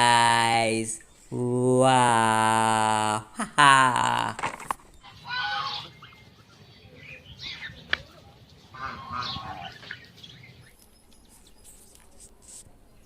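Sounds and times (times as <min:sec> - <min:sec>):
duck quacking: 0:05.2 - 0:05.9.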